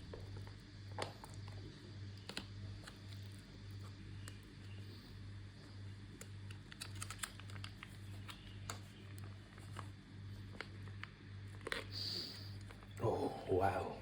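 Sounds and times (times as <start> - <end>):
low pulsing hum: 0.0 - 6.8.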